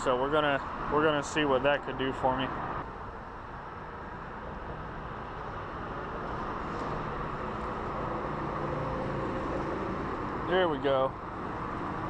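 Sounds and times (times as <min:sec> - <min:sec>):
highway traffic noise: 0:00.0 - 0:12.0
vehicles passing with hums: 0:00.0 - 0:12.0.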